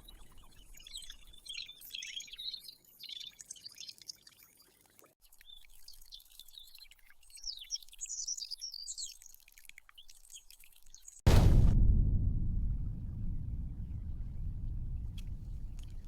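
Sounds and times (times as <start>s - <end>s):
loud low rumble: 11.3s - 16.0s.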